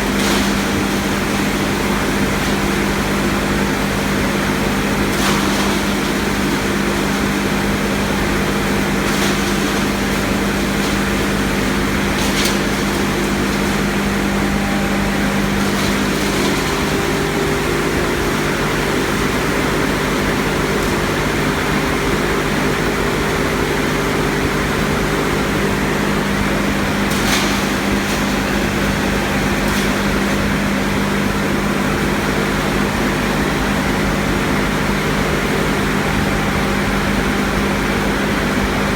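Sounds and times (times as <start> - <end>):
wood crusher rushing noise: 0.0 - 38.9.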